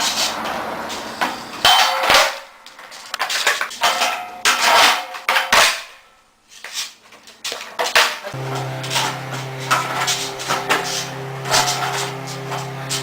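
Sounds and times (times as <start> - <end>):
skateboard clattering on hard floor: 1.2 - 5.9, 6.7 - 8.4.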